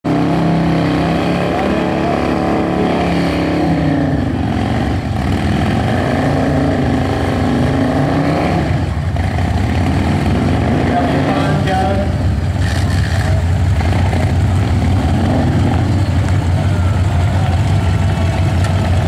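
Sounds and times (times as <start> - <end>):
motorcycle engine revving: 0.1 - 19.0.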